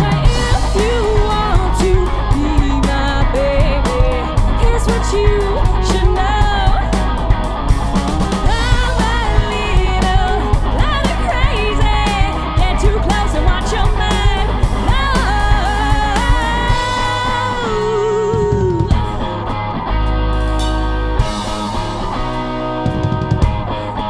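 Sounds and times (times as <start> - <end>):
person singing: 0.0 - 7.2, 8.4 - 19.5
live rock band playing: 0.0 - 24.0.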